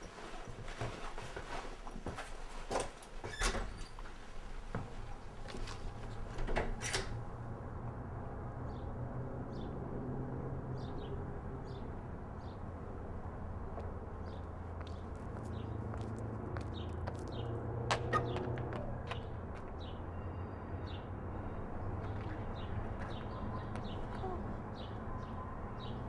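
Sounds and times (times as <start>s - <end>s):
small birds chirping: 13.8s - 21.1s, 21.9s - 26.0s.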